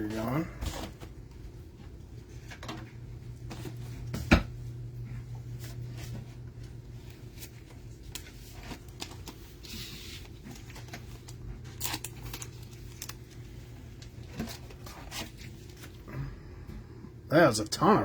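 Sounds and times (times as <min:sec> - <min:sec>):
cards and plastic sleeves clicking: 0:10.5 - 0:14.9.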